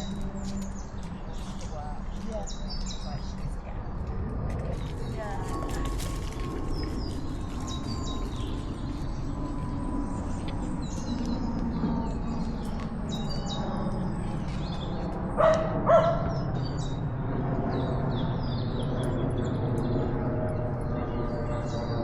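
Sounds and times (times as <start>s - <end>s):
small birds chirping: 0.0s - 4.1s, 4.7s - 17.1s
low rumble: 0.0s - 22.0s
dog barking: 15.4s - 16.4s.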